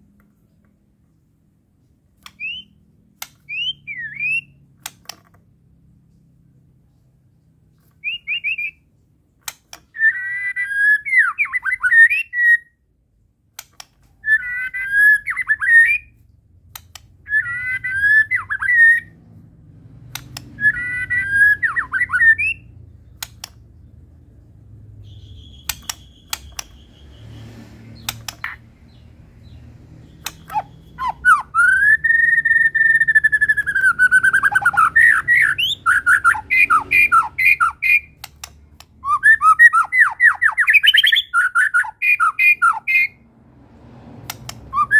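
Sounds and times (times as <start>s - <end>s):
songbird whistling: 2.2s - 2.8s, 3.4s - 4.6s, 8.0s - 8.9s, 9.9s - 12.8s, 14.2s - 16.2s, 17.2s - 19.2s, 20.4s - 23.2s, 24.9s - 38.2s, 39.0s - 43.2s, 44.6s - 44.9s
sharp clicks: 4.7s - 5.4s, 9.3s - 10.0s, 13.5s - 14.2s, 16.2s - 17.4s, 20.0s - 20.8s, 21.7s - 23.9s, 25.0s - 31.4s, 33.0s - 39.4s, 44.1s - 44.8s.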